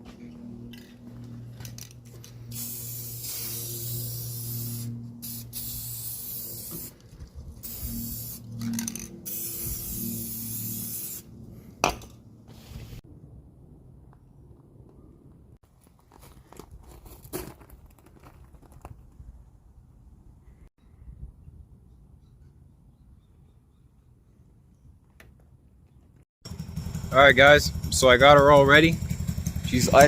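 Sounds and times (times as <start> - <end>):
spray hissing: 2.5 - 6.9, 7.6 - 11.3.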